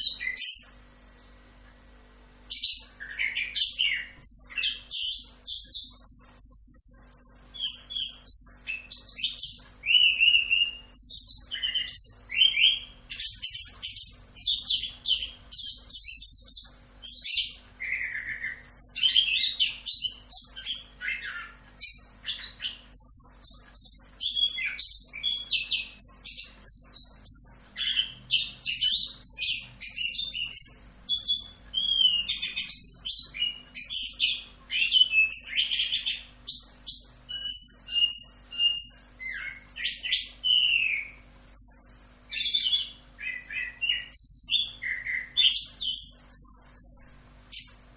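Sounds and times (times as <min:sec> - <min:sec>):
thrush singing chirps and trills: 0:00.0 - 0:47.9.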